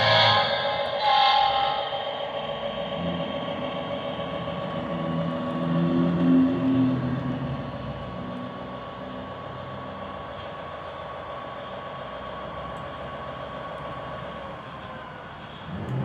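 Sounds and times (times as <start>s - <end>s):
model locomotive diesel idling: 0.0s - 16.0s.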